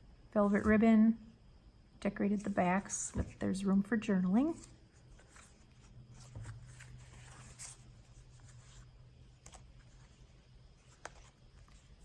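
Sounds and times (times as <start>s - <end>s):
paper rustling: 4.4s - 12.0s.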